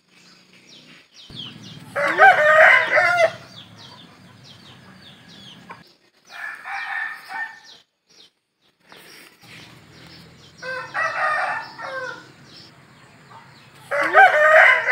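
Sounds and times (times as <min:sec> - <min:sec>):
rooster crowing: 0:01.3 - 0:07.7, 0:09.9 - 0:12.7, 0:13.5 - 0:14.9.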